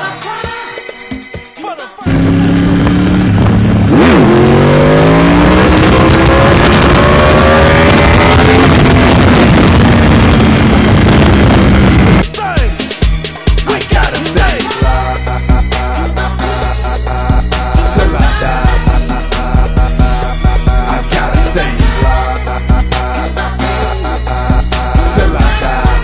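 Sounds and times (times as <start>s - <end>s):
motorcycle engine: 2.0s - 12.2s
wind rushing over microphone: 2.1s - 12.2s.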